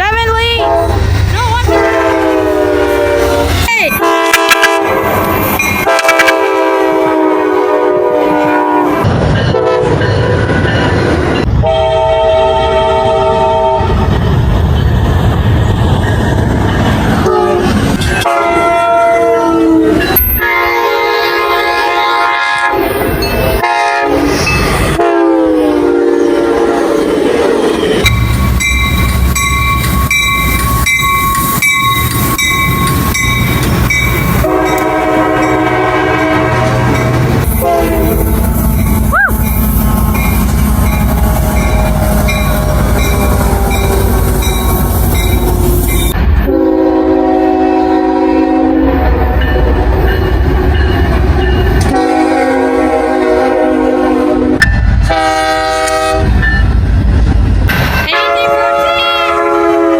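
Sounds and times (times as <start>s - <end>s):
train engine and wheel noise: 0.0s - 59.9s
locomotive air horns: 0.5s - 10.0s, 11.6s - 14.0s, 17.2s - 23.0s, 23.6s - 27.4s, 34.4s - 49.2s, 51.8s - 56.4s, 58.0s - 59.9s
wheels clattering on rails: 28.0s - 37.6s.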